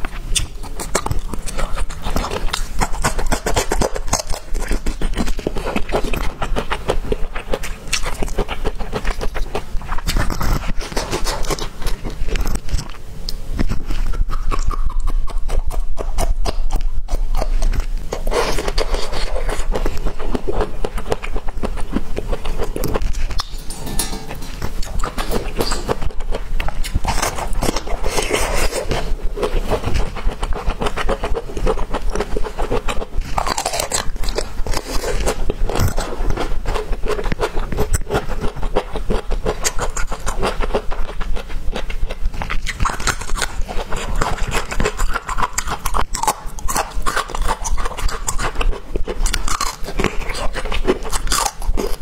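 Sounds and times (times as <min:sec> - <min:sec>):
chewing bamboo shoot: 0:00.0 - 0:52.0.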